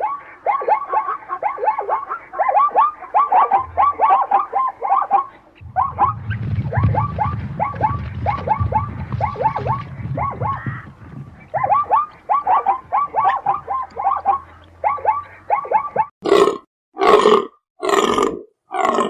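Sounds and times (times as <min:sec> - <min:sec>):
animal chirping calls: 0:00.0 - 0:16.1
low rumble: 0:05.6 - 0:14.9.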